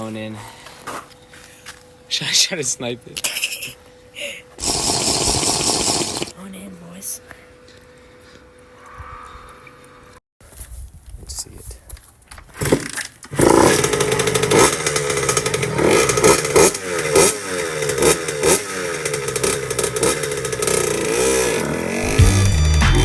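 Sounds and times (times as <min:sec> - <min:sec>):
dirt bike engine revving: 0:04.6 - 0:06.3, 0:12.6 - 0:23.0.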